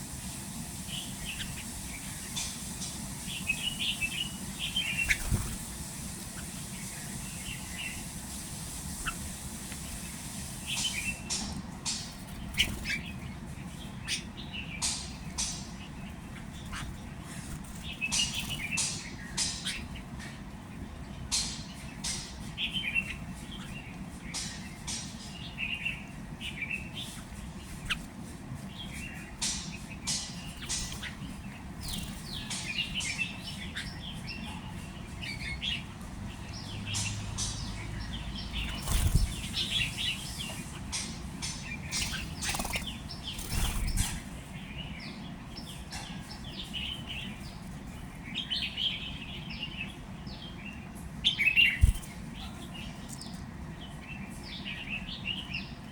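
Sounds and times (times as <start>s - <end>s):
small birds chirping: 0.0s - 55.9s
wings flapping: 4.9s - 6.5s, 38.6s - 40.4s, 41.9s - 44.4s, 51.8s - 52.2s.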